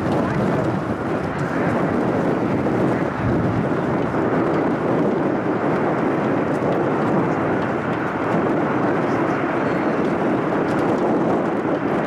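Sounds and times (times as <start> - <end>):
fighter jet engines roaring: 0.0 - 12.0.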